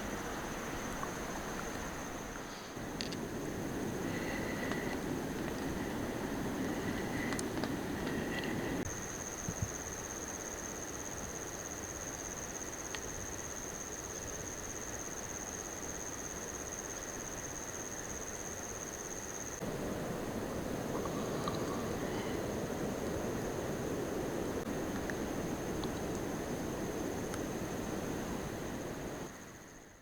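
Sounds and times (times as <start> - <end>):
soft even hiss: 0.0 - 13.1
insect high-pitched trill: 8.2 - 19.6.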